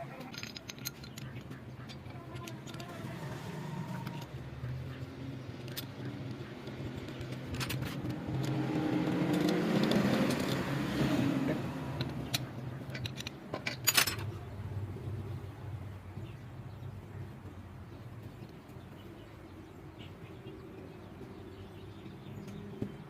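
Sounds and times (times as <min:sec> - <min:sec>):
sharp metallic clinks: 0:00.0 - 0:03.2.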